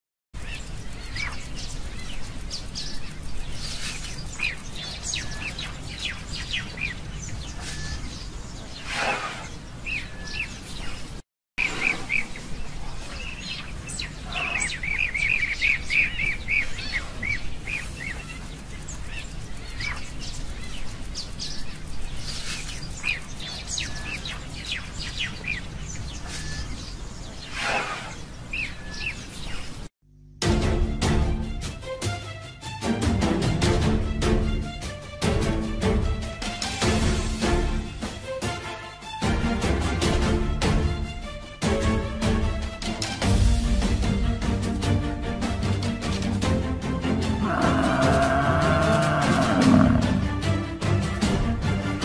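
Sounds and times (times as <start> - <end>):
birds chirping and calling: 0.4 - 29.9, 47.4 - 50.2.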